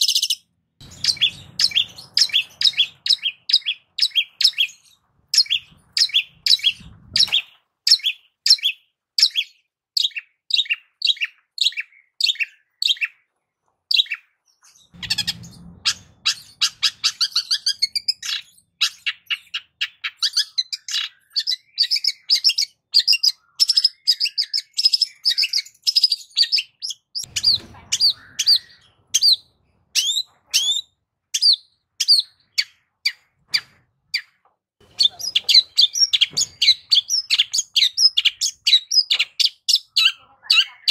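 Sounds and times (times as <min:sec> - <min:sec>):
shrike singing: 0:00.8 - 0:04.8.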